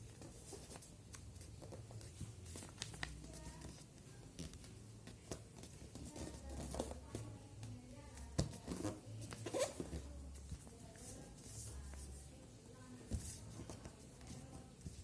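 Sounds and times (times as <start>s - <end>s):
paper rustling and creasing: 0.1s - 3.8s.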